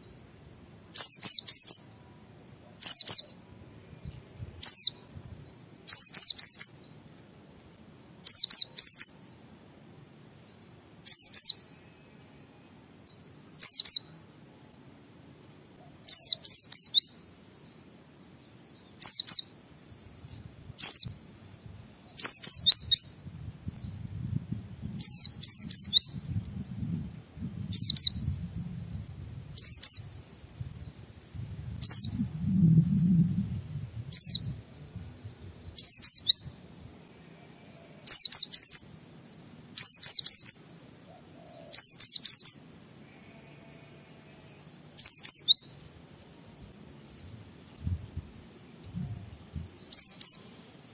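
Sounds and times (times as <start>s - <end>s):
bird chirping high-pitched phrases: 0.0s - 3.4s, 4.1s - 7.0s, 8.2s - 9.4s, 10.4s - 12.1s, 12.9s - 14.2s, 15.9s - 17.8s, 18.4s - 24.0s, 27.7s - 30.3s, 33.7s - 36.6s, 37.6s - 40.8s, 41.5s - 42.8s, 44.6s - 45.8s, 49.6s - 50.5s.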